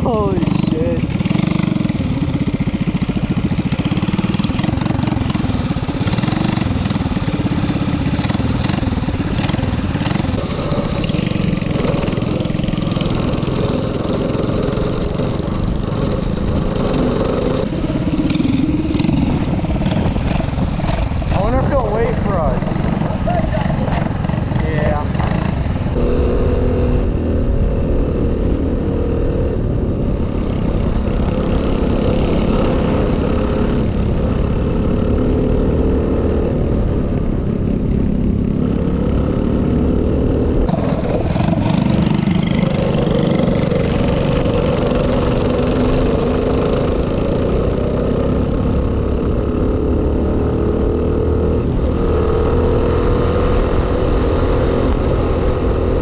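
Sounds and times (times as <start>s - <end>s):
minibike engine running: 0.0s - 26.5s, 40.6s - 49.4s
wind and road noise: 0.0s - 56.0s.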